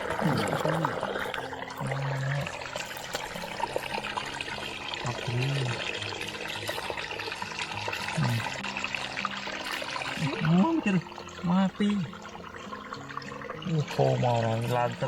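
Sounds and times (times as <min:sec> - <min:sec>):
water trickling and pouring: 0:00.0 - 0:15.0.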